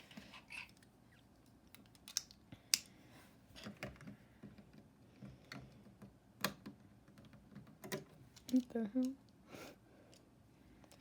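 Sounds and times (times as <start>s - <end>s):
plastic bricks clicking: 1.7s - 2.9s.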